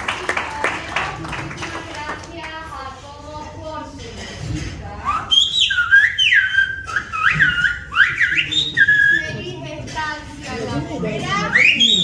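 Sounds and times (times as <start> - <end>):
person whistling speech: 5.1 - 9.4, 11.4 - 12.0.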